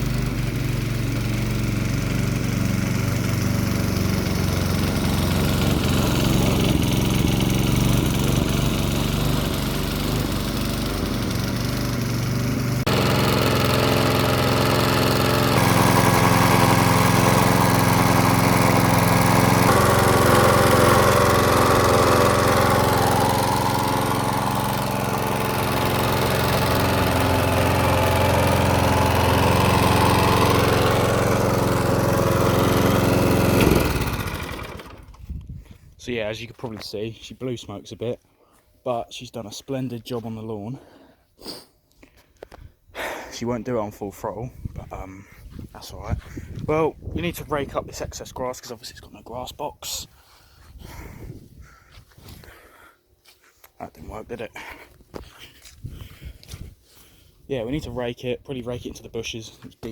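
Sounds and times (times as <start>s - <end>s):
lawnmower engine running: 0.0s - 35.3s.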